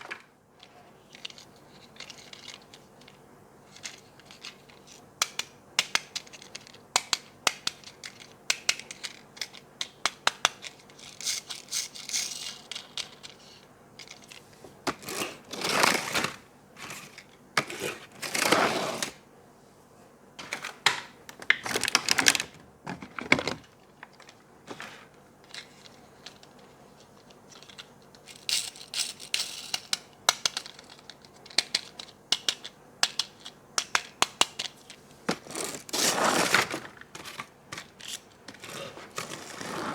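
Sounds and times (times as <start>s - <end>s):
plastic and cardboard clicks: 29.7s - 34.7s.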